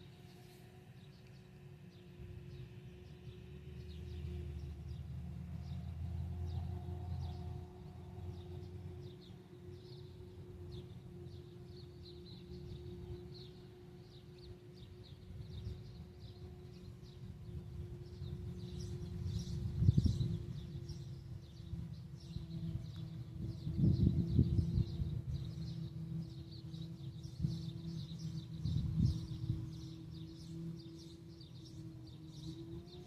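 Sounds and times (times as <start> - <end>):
small birds chirping: 8.3 - 33.0.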